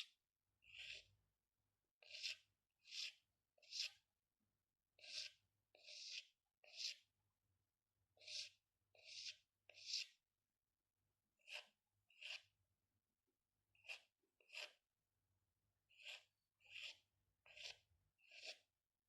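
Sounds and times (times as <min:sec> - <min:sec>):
pen scratching on paper: 0:00.0 - 0:01.2, 0:02.0 - 0:04.1, 0:04.9 - 0:07.2, 0:08.1 - 0:10.2, 0:11.4 - 0:12.6, 0:13.7 - 0:14.9, 0:15.9 - 0:18.8.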